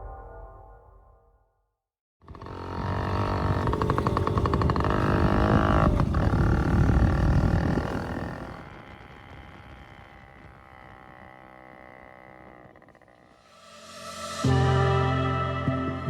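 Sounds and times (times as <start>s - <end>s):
two-stroke engine starting and revving: 2.2s - 14.7s.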